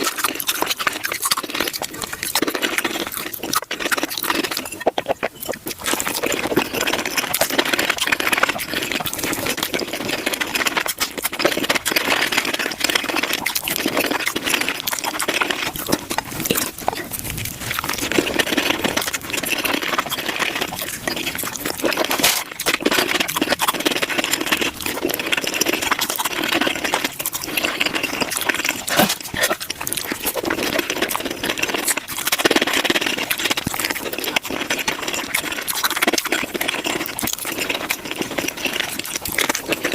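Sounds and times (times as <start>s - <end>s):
rapid crunching and chewing: 0.0s - 39.9s.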